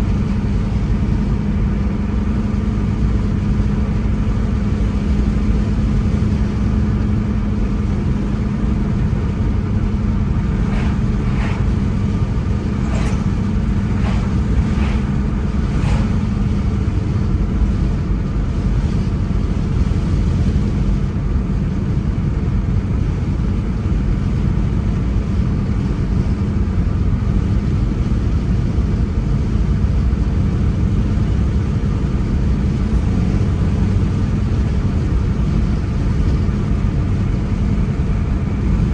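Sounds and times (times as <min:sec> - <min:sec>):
car engine and tyre rumble: 0:00.0 - 0:38.9
steady hum: 0:09.2 - 0:17.6.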